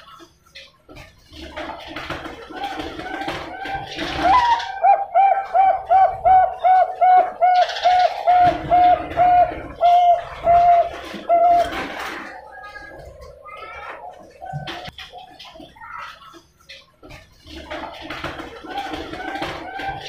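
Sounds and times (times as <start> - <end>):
dove cooing: 2.5 - 14.9.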